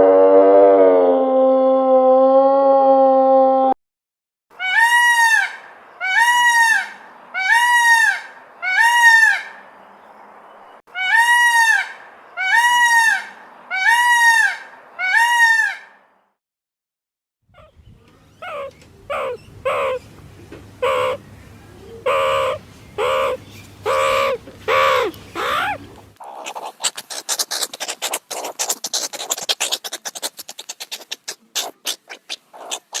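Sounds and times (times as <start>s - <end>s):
animal calls rising and falling: 4.6s - 9.6s, 10.9s - 15.9s, 18.4s - 20.0s, 22.0s - 33.0s
short animal calls: 22.0s - 33.0s.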